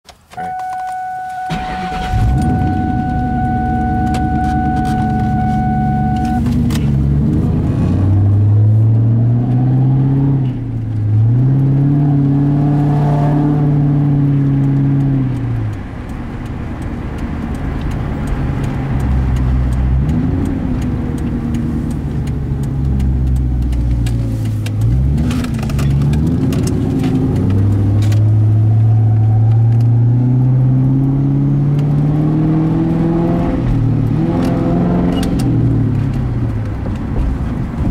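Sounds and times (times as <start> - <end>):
steady tone: 0.4 - 6.5
car engine revving and idling: 0.8 - 37.9.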